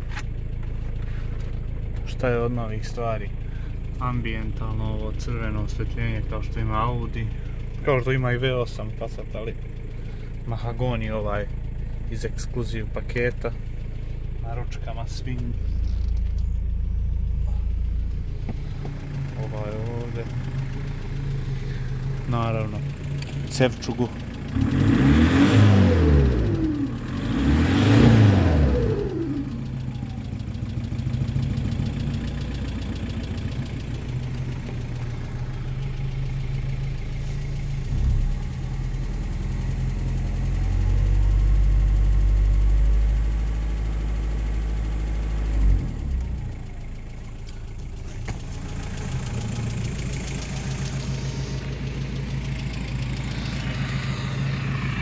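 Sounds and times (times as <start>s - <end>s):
diesel engine revving and idling: 0.0s - 55.0s
deep steady drone: 12.9s - 43.3s, 45.4s - 55.0s.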